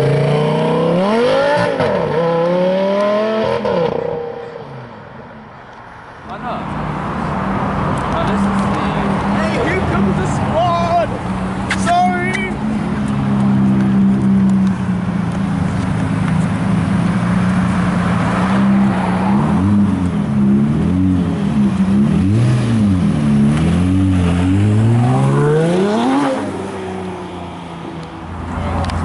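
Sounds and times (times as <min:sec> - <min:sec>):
sports car engine revving: 0:00.0 - 0:04.4, 0:16.6 - 0:27.4.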